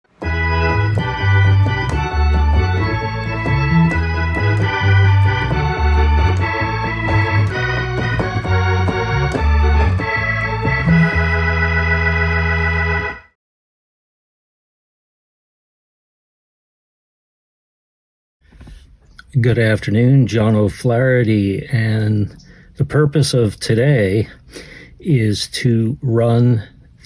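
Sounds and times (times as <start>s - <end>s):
organ music: 0.0s - 13.4s, 19.4s - 25.6s.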